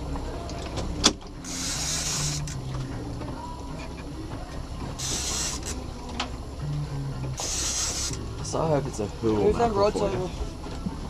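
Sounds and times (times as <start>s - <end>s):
outboard motor humming: 0.0s - 11.0s
burst of hiss: 1.5s - 2.5s, 5.0s - 5.8s, 7.4s - 8.2s.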